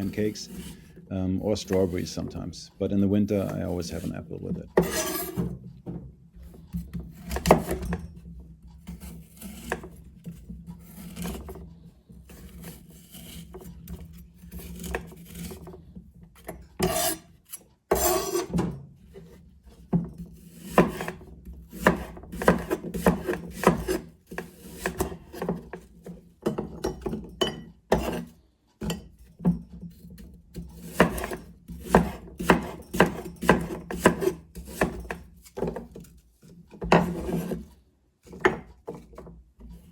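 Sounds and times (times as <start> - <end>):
knife on wooden cutting board: 0.0 - 2.2, 3.4 - 5.6, 6.4 - 11.6, 12.2 - 15.8, 16.4 - 29.2, 29.9 - 39.0.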